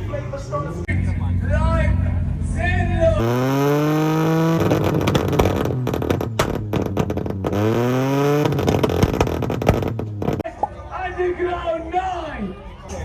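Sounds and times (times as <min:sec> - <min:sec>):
car engine revving: 0:00.9 - 0:10.4
exhaust pops and crackles: 0:03.2 - 0:10.8.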